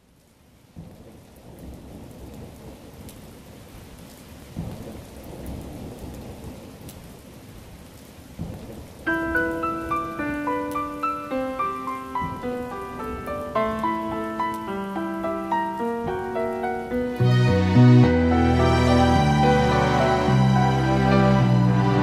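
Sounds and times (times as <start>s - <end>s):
steady rain: 0.0s - 22.0s
low rolls of thunder: 0.7s - 7.4s, 8.3s - 17.4s
piano notes: 9.1s - 22.0s.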